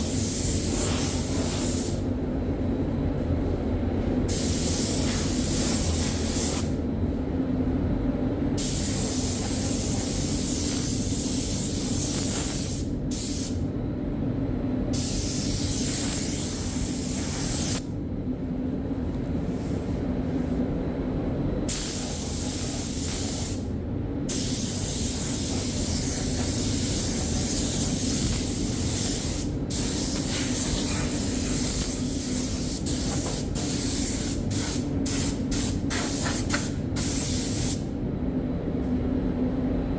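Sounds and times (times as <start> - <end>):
spray gun hissing: 0.0 - 2.0, 4.3 - 6.7, 8.6 - 13.6, 15.0 - 17.8, 21.7 - 23.6, 24.3 - 37.8
steady low hum: 0.0 - 39.9.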